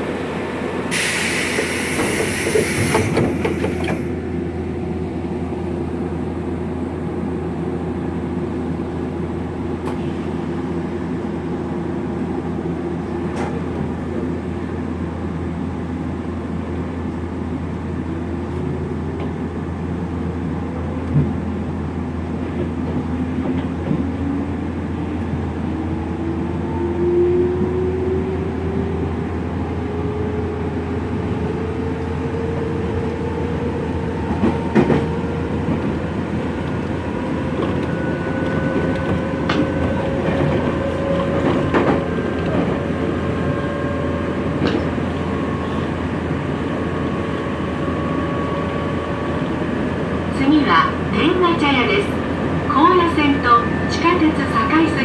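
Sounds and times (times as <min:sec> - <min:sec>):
train motors and wheels rumbling: 0:00.0 - 0:55.0
hissing air burst: 0:00.9 - 0:03.8.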